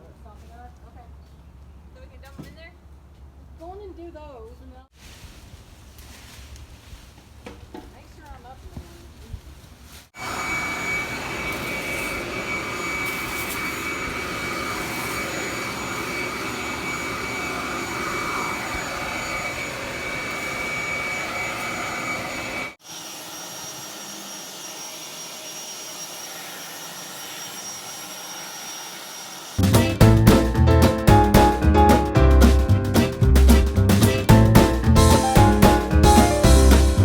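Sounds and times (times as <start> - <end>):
leaf blower whooshing: 9.4 - 22.9.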